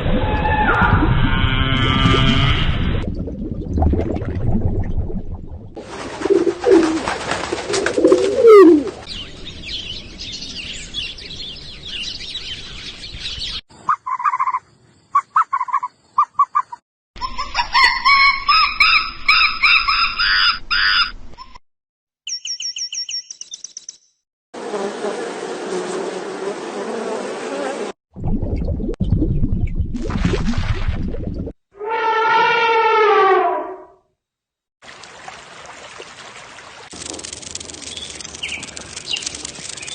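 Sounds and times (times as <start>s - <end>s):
bird song: 9.0s - 16.8s, 22.2s - 24.2s, 37.8s - 39.9s
bird chirps: 22.2s - 24.2s, 37.8s - 39.9s.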